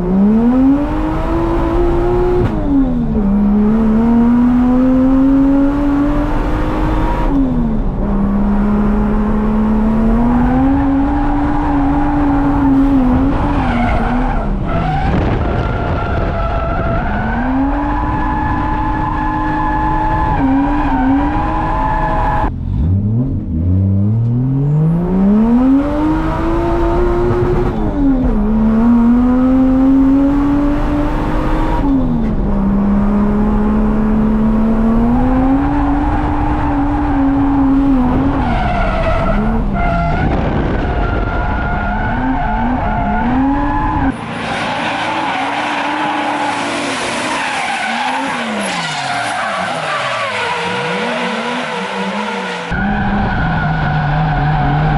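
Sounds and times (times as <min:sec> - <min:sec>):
car engine revving: 0:00.0 - 0:54.9
tyres squealing and skidding: 0:10.4 - 0:22.5, 0:35.6 - 0:54.9.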